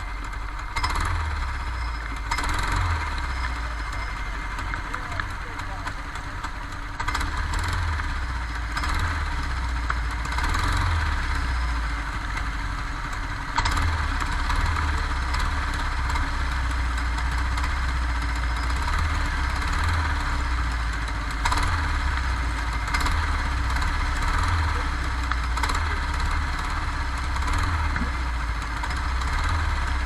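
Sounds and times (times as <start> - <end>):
go-kart engine running: 0.0 - 30.0.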